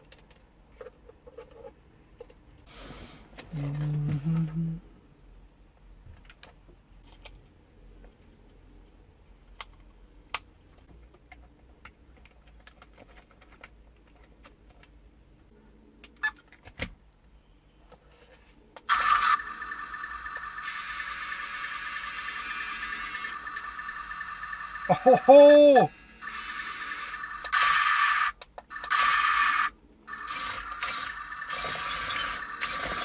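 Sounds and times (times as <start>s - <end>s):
small electric motor whirring: 18.9s - 33.0s
small parts clicking: 18.9s - 33.0s.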